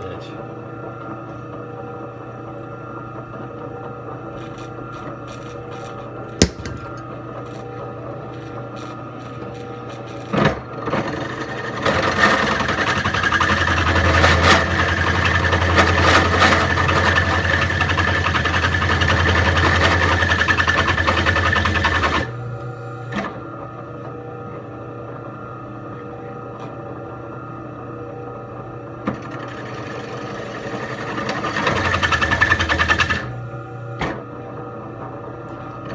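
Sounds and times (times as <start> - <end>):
sharp knock: 6.4 - 7.0
electric drill boring through steel: 11.0 - 23.2, 29.4 - 33.9.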